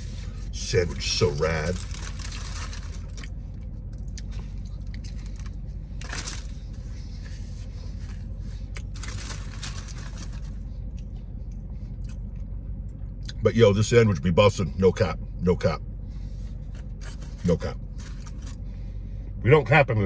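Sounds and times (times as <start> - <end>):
low hum in a car cabin: 0.0 - 20.0
man chewing a sandwich: 1.7 - 13.4.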